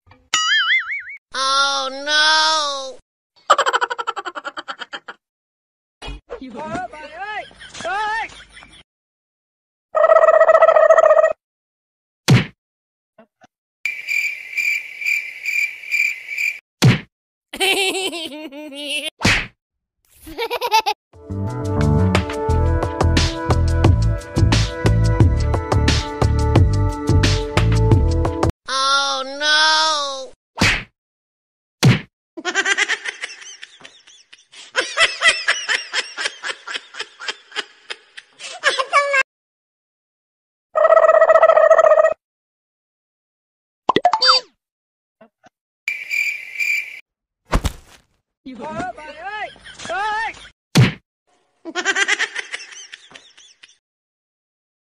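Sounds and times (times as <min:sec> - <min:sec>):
high-pitched laughter: 0:03.4 - 0:05.2, 0:17.6 - 0:19.1, 0:20.2 - 0:21.0, 0:32.4 - 0:39.2, 0:51.7 - 0:53.8
sharp whack: 0:12.3 - 0:12.6, 0:16.8 - 0:17.1, 0:19.2 - 0:19.6, 0:30.6 - 0:30.9, 0:31.8 - 0:32.1, 0:47.5 - 0:48.0, 0:50.8 - 0:51.0.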